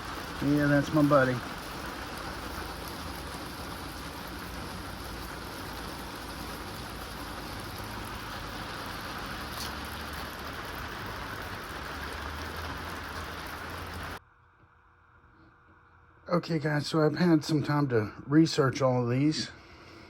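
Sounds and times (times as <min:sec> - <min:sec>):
rain rushing: 0:00.0 - 0:14.2.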